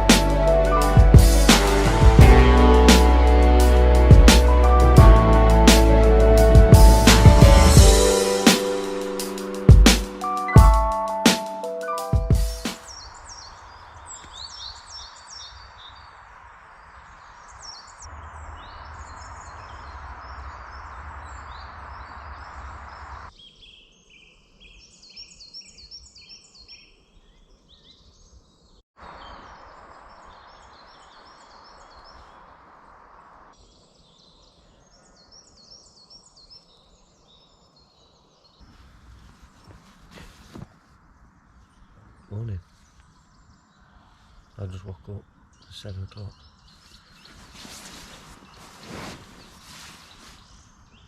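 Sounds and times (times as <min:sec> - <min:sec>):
steady background hiss: 0:29.0 - 0:45.7, 0:46.3 - 0:51.0
birds singing and chirping: 0:41.3 - 0:51.0.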